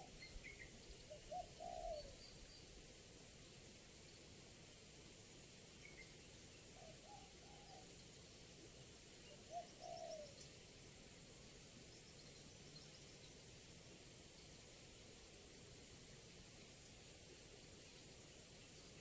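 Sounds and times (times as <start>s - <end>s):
steady hiss: 0.0s - 19.0s
dove cooing: 1.1s - 2.2s, 9.5s - 10.4s.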